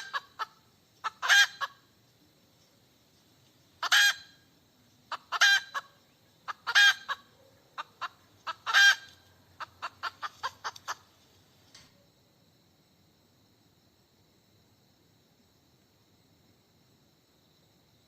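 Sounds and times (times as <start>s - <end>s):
hen clucking: 0.0s - 1.8s, 3.8s - 4.4s, 5.1s - 11.1s
hen squawking: 0.0s - 1.8s, 6.5s - 11.0s.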